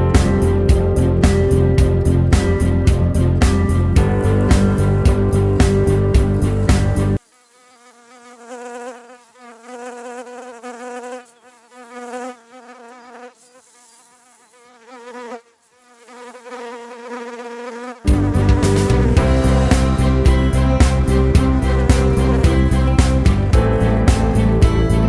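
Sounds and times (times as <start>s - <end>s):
grass trimmer buzzing: 16.5s - 23.5s.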